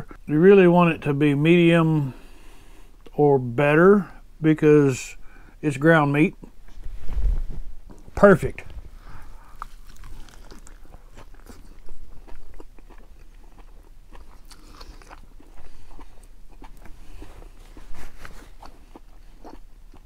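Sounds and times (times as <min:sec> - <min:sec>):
person chewing with crunches: 0:07.8 - 0:20.0.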